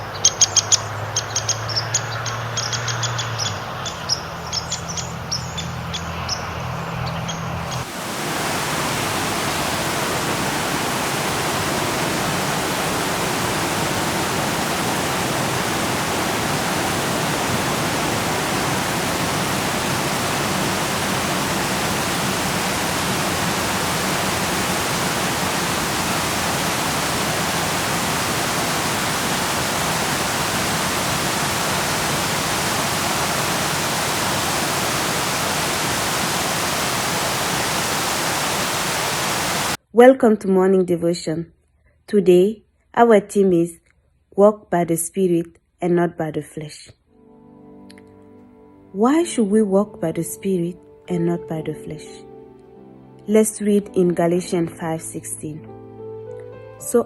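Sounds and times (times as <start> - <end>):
steady rushing hiss: 7.7 - 39.8.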